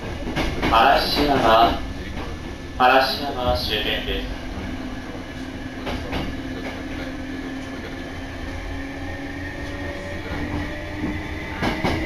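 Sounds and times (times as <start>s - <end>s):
train motor hum: 0.0s - 12.0s
train rumble inside carriage: 0.0s - 12.0s.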